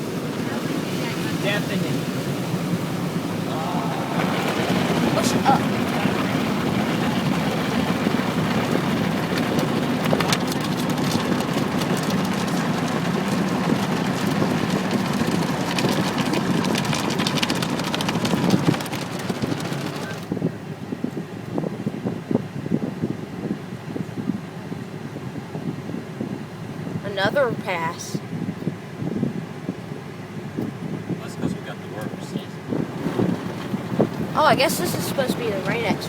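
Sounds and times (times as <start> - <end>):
car wash water and brushing: 0.0 - 20.8, 31.3 - 36.0.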